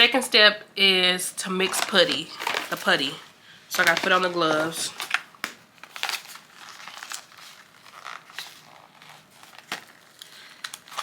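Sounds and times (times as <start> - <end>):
plastic packaging crinkling: 1.4 - 11.0.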